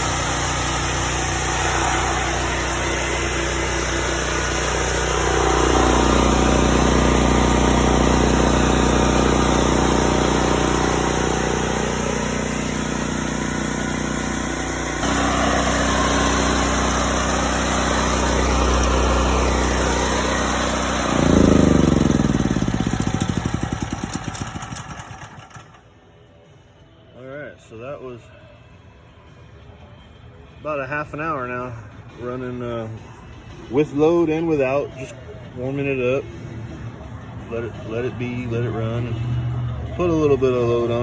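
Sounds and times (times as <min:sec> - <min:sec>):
engine spinning down: 0:00.0 - 0:26.0
generator engine running: 0:00.0 - 0:26.0.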